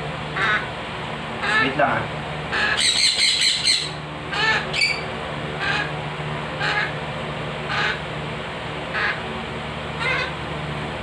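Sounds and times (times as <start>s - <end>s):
baby parrot squawking: 0.4s - 0.7s, 1.4s - 1.8s, 2.5s - 5.9s, 6.6s - 7.0s, 7.7s - 8.0s, 8.9s - 9.2s, 10.0s - 10.4s.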